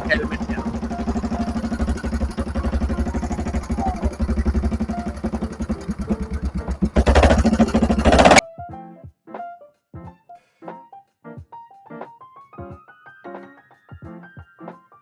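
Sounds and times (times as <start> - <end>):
motorcycle engine puttering: 0.0 - 8.4.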